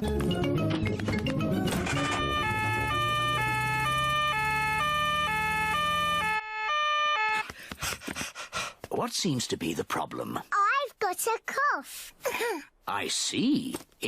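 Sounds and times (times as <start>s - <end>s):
cartoon siren: 1.9s - 7.5s.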